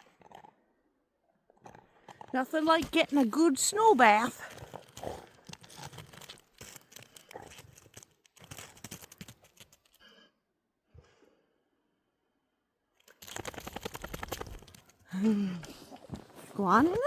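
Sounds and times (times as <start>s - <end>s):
snow crunching: 2.4s - 6.9s, 15.7s - 17.0s.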